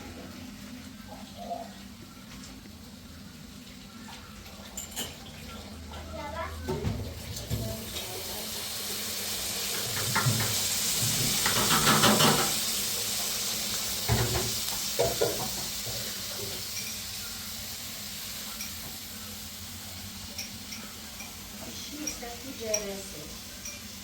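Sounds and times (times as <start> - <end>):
pot and utensil clinking: 4.6 - 5.3, 11.3 - 12.6, 14.1 - 17.2, 20.2 - 24.0
food sizzling: 4.8 - 24.0.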